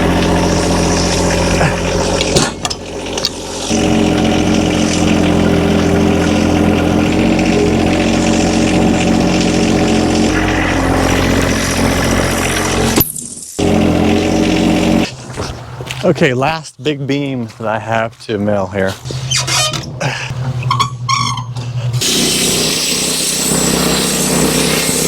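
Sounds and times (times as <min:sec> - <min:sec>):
engine running steadily: 0:00.0 - 0:13.0, 0:13.6 - 0:16.0.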